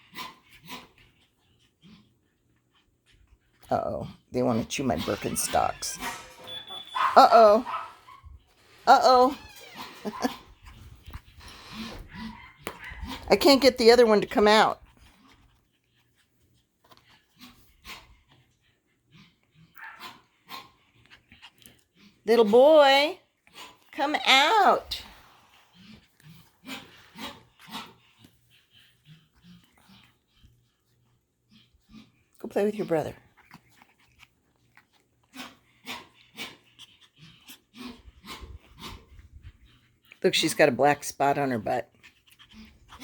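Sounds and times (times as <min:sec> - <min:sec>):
puppies snuffling and breathing: 0:00.0 - 0:43.0
puppy yapping: 0:05.2 - 0:08.3, 0:12.0 - 0:13.3, 0:19.7 - 0:20.7.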